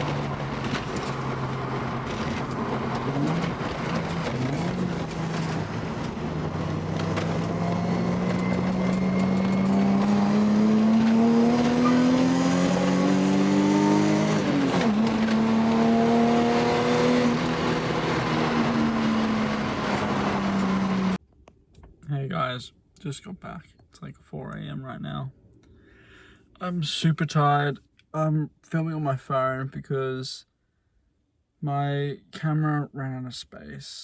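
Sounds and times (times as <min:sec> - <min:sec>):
car engine pulling under load: 0:00.0 - 0:21.2.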